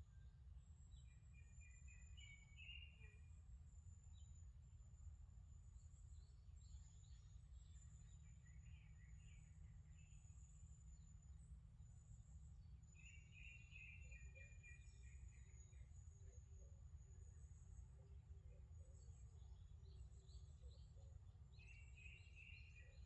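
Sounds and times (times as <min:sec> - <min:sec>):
small birds chirping: 0:00.2 - 0:23.0.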